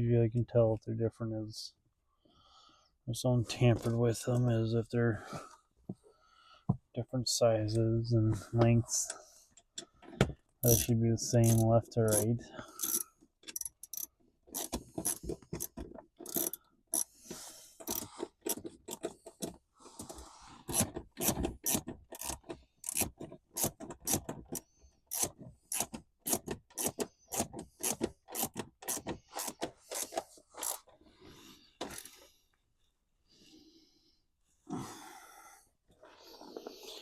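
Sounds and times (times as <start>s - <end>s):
ratchet wrench clicking: 10.7s - 17.1s, 17.8s - 19.0s, 20.7s - 24.2s, 25.1s - 30.8s.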